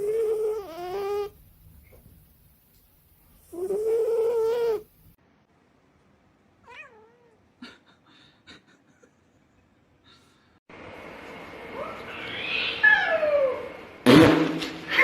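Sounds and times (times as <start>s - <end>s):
cat yowling and meowing: 6.6s - 7.4s, 12.1s - 13.7s.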